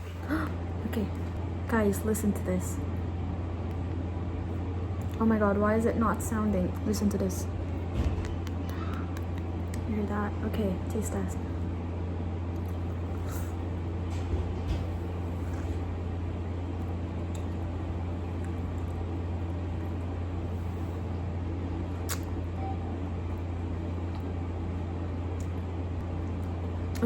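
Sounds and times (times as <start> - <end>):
steady low hum: 0.0 - 27.0
chewing clicks: 8.2 - 9.9, 16.8 - 17.7, 22.0 - 22.4.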